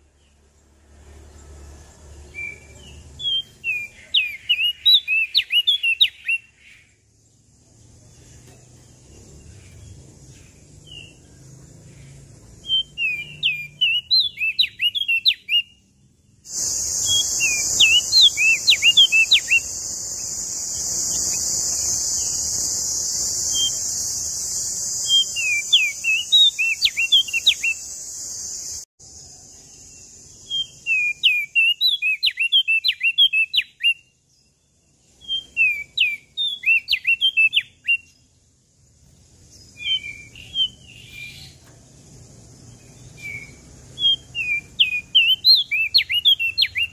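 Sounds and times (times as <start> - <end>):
songbird whistling song: 1.4 - 38.4, 39.5 - 46.9
loud steady high hiss: 16.4 - 31.7.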